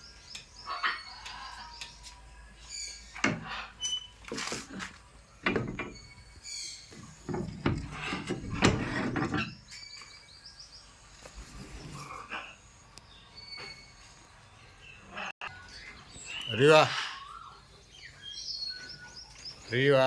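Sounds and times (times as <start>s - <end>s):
knocking: 5.4s - 9.6s.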